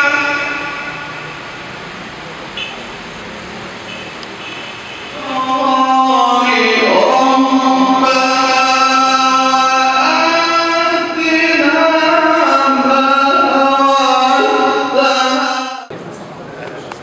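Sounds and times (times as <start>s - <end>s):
man chanting: 0.0s - 1.2s, 5.1s - 15.9s.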